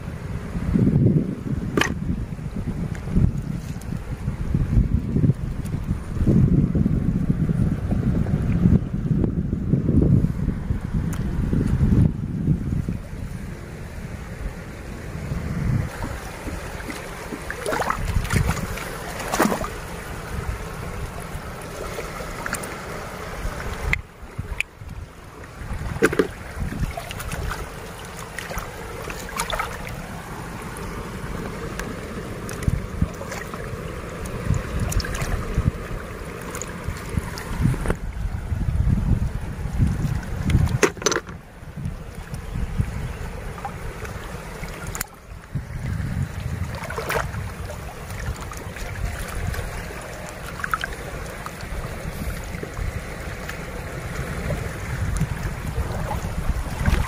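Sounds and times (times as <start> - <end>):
sea water washing ashore: 0.0 - 57.0
wind buffeting microphone: 0.0 - 57.0
short knocks and splashes: 1.7 - 2.0, 15.9 - 19.8, 25.8 - 29.9, 46.7 - 51.6.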